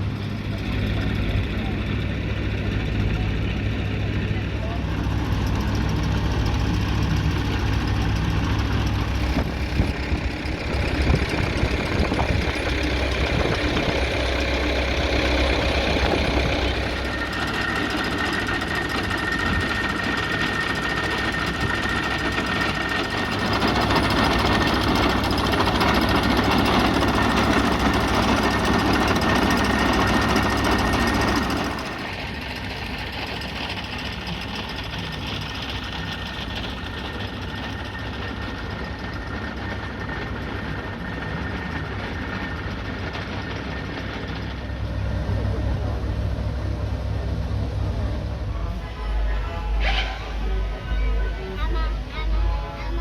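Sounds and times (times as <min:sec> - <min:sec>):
engine humming: 0:00.0 - 0:53.0
high-pitched tone: 0:47.8 - 0:53.0.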